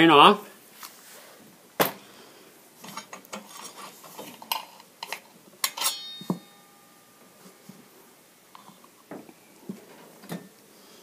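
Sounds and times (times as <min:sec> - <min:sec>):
metal parts clicking and clinking: 0:04.4 - 0:06.4
brief metallic ring: 0:05.7 - 0:07.2.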